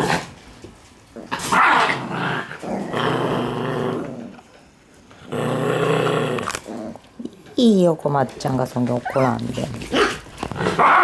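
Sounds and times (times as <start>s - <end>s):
puppies growling and yapping: 1.1s - 7.2s, 9.0s - 11.0s.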